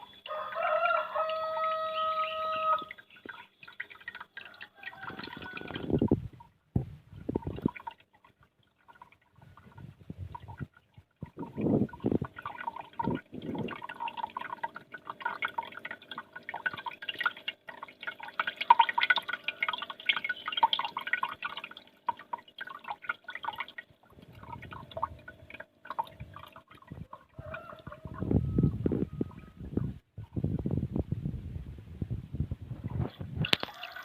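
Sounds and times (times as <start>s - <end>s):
water trickling and dripping: 0.0s - 30.5s, 32.8s - 34.0s
faint steady hum: 0.0s - 34.0s
low thumps: 5.9s - 7.7s.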